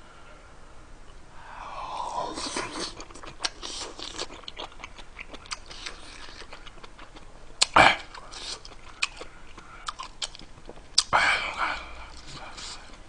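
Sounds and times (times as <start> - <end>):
man chewing food: 1.1 - 13.0.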